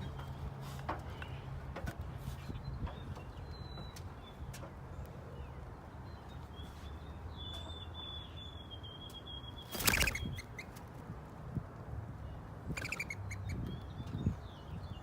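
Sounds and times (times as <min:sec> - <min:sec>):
small birds chirping: 0:01.0 - 0:11.1, 0:12.1 - 0:15.0
high bird trill: 0:07.4 - 0:10.8, 0:12.7 - 0:15.0
wings fluttering: 0:09.6 - 0:11.1, 0:12.7 - 0:13.2.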